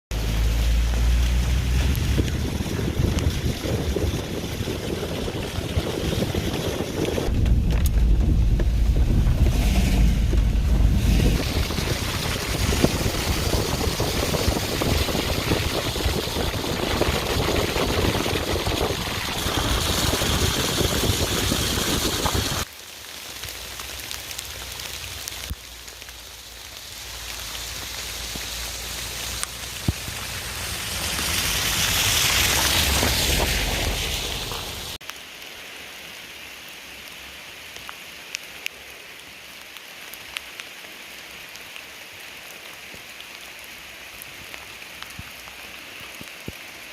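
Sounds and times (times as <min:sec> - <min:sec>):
rain falling: 0:00.1 - 0:46.9
low rumble: 0:00.2 - 0:22.7.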